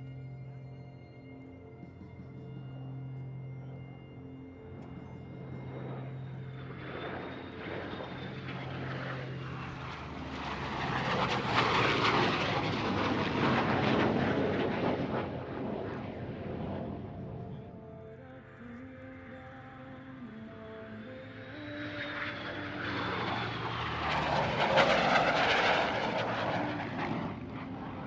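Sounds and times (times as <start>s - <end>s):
jet flying past: 5.4s - 17.8s, 20.7s - 28.0s.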